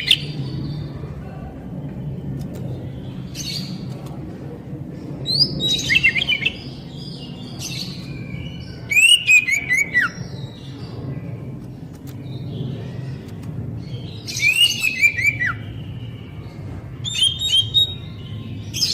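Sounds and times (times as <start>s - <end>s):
steady low hum: 0.0s - 18.9s
bird singing whistles and chirps: 5.3s - 10.7s, 14.0s - 18.9s.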